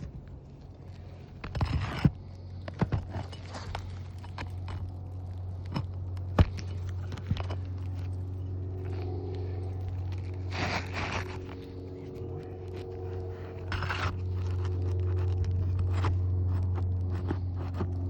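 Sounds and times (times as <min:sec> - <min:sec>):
scraping on roof shingles: 0:00.0 - 0:05.0, 0:10.0 - 0:18.0
clicks and knocks on shingles: 0:00.0 - 0:09.1
steady low hum: 0:00.0 - 0:18.0.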